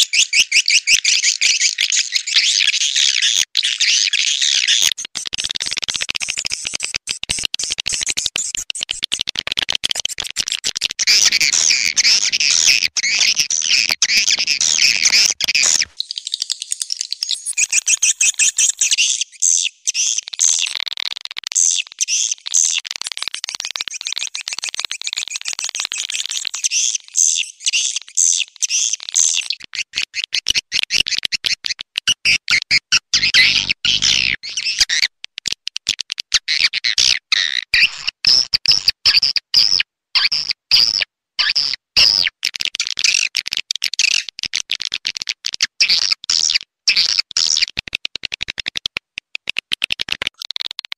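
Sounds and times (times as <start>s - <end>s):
swiftlets twittering and clicking: 4.9s - 29.5s.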